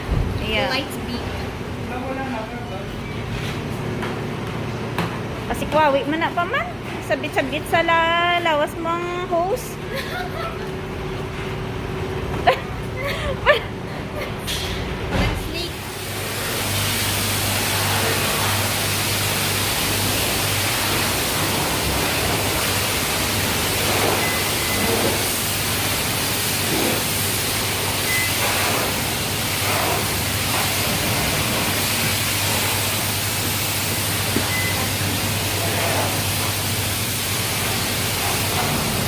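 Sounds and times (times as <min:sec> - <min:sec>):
faint short beeps: 0:34.5 - 0:34.9.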